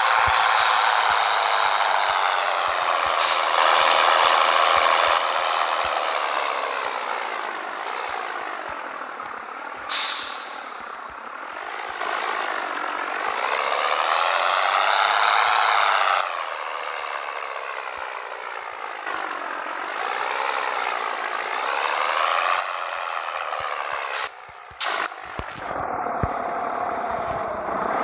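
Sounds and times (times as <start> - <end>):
truck diesel engine revving: 0.0 - 28.0
sharp air hiss: 0.6 - 1.4, 3.2 - 3.9, 9.9 - 11.1, 24.2 - 25.4.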